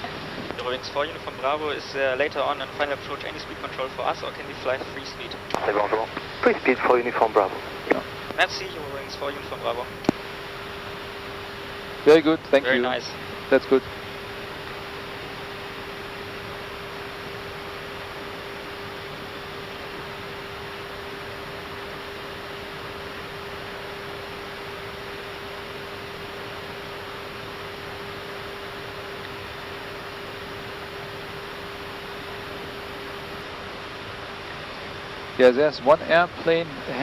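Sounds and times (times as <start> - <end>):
rush of airflow noise: 0.0 - 0.6
constant electrical hum: 0.0 - 37.0.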